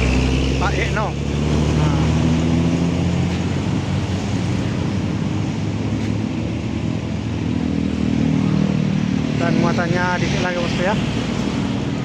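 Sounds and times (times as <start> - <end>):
truck diesel engine running: 0.0 - 8.3.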